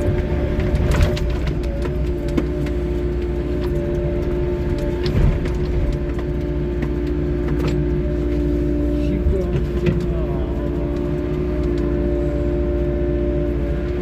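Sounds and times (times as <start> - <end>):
diesel engine rumble: 0.0 - 14.0
steady whine: 0.0 - 14.0.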